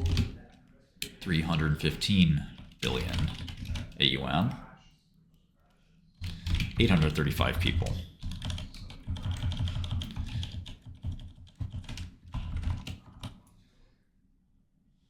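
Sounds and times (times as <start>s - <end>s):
typing on computer keyboard: 0.0s - 1.2s, 2.4s - 4.0s, 6.2s - 13.5s.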